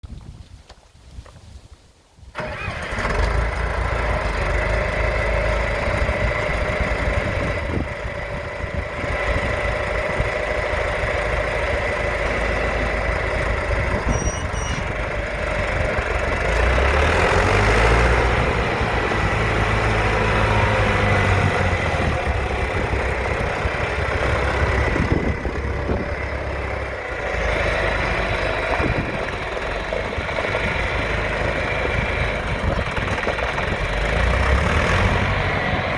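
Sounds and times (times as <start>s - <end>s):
diesel engine running: 2.4s - 35.9s.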